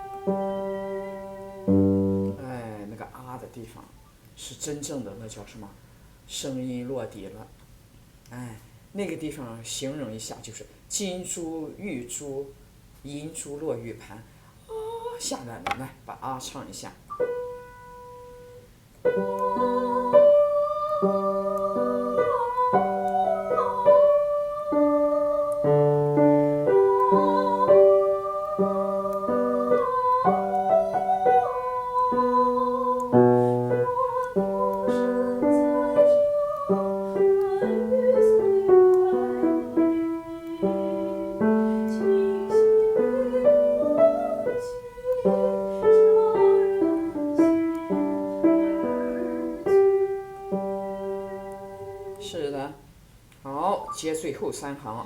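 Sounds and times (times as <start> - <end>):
piano chords: 0.0 - 3.0, 17.1 - 52.3
woman singing vocal exercise: 14.6 - 15.4, 19.1 - 49.9.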